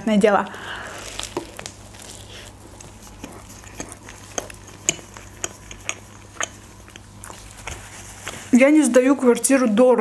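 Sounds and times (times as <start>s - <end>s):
person chewing: 0.6s - 8.5s
wet mouth clicks: 2.5s - 8.4s.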